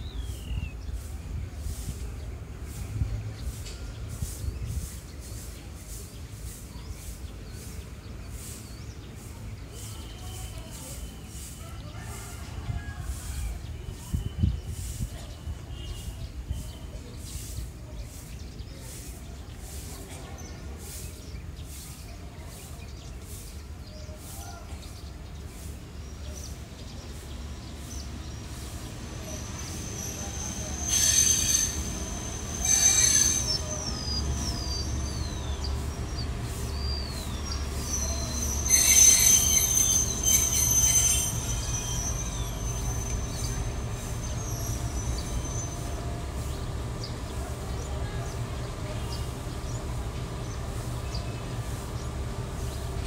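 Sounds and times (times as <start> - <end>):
train rumble: 0.0 - 53.0
metal-on-metal squeals: 29.4 - 35.1, 37.8 - 45.9.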